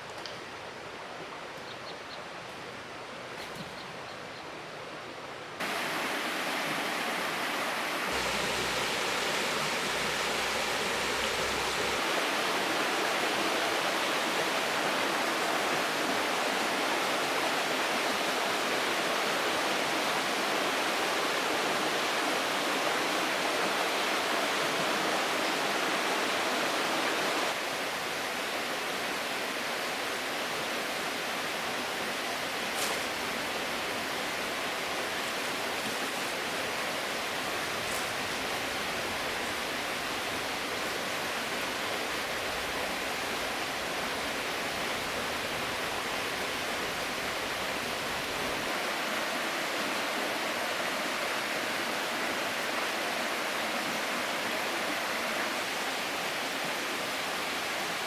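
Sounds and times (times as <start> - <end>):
river water rushing: 5.6 - 58.0.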